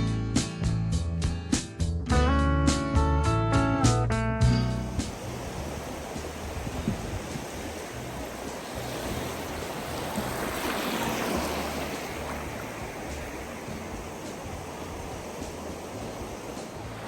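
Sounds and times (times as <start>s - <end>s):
small waves breaking: 4.8s - 17.0s.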